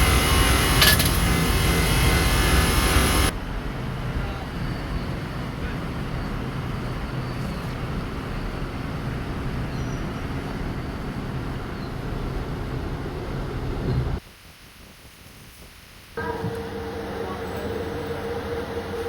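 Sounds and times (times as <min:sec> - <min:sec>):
mechanical running noise with hum: 0:00.0 - 0:03.3, 0:16.2 - 0:19.0.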